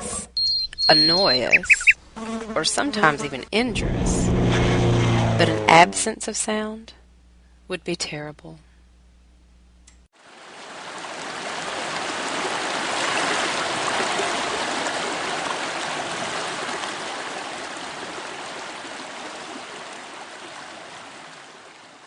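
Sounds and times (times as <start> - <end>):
steady rushing like running water: 10.2 - 22.0.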